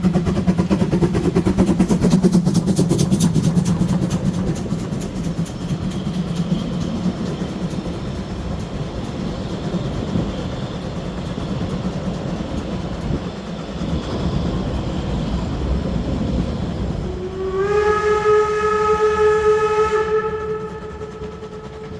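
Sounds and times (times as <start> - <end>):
steam locomotive rumbling: 0.0 - 21.9
steam whistle blast: 17.0 - 21.9.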